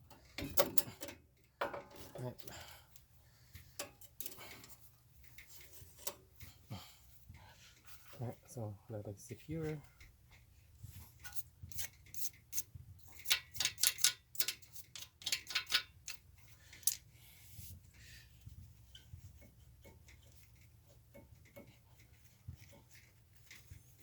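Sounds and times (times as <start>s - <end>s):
sharp clicks of tools: 11.3s - 16.2s.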